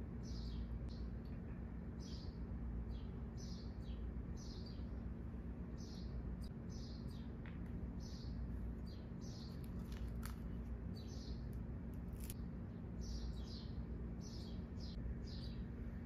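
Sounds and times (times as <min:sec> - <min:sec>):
small birds chirping: 0:00.0 - 0:16.0
steady low hum: 0:00.0 - 0:16.0.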